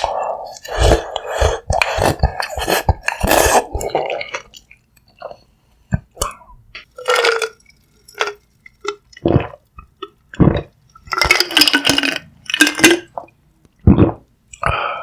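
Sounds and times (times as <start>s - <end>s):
wet slurps and swallows: 0.0s - 4.6s.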